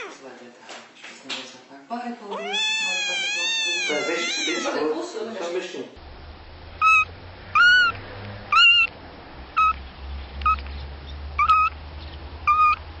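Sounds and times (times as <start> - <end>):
kitten mewing: 0.0 - 0.2, 2.3 - 5.0, 7.6 - 8.9, 12.5 - 12.8.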